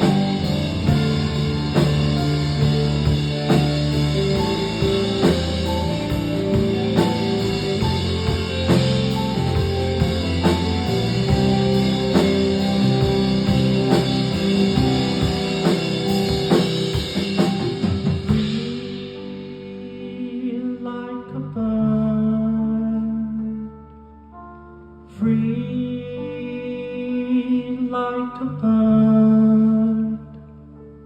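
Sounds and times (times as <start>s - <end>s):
held guitar chord ringing: 0.0s - 19.3s
rock band playing: 0.0s - 19.8s.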